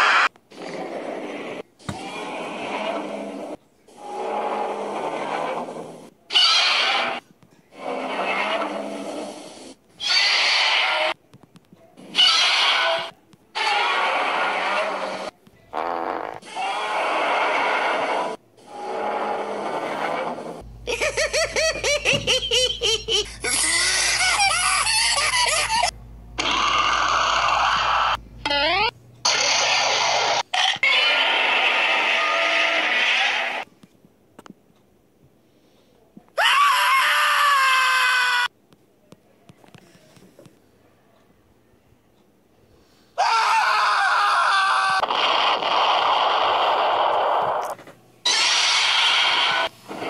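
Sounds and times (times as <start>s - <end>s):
squeaky chirping creature sounds: 6.3s - 7.2s, 10.0s - 11.2s, 12.0s - 18.1s, 22.5s - 33.6s, 48.2s - 49.7s
monster roars: 12.2s - 15.3s, 16.2s - 20.5s, 26.4s - 28.2s, 48.3s - 49.7s
hissing: 45.0s - 50.0s.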